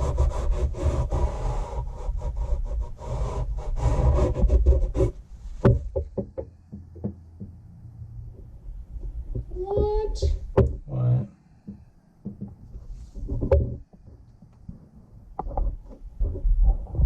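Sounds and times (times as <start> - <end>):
rhythmic rubbing strokes: 0.0 - 5.6
clicks and knocks: 5.6 - 7.6, 11.6 - 17.0.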